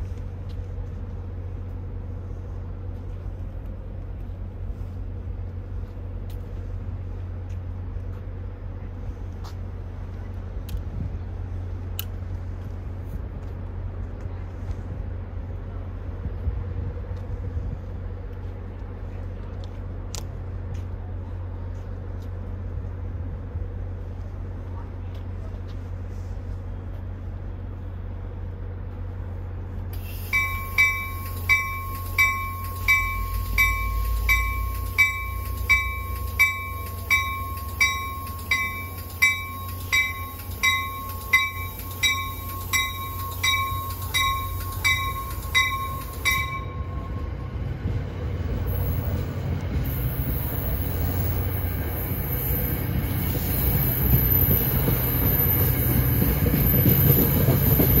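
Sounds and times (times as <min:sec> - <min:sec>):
train approaching rumble and hiss: 0:00.0 - 0:58.0
warning bell ringing: 0:30.2 - 0:47.5.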